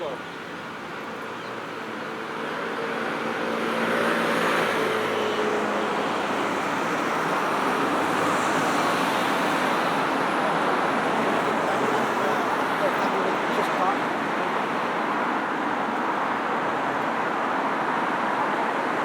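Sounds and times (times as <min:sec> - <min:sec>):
road traffic passing: 0:00.0 - 0:19.0
vehicle engine passing by: 0:02.7 - 0:14.0.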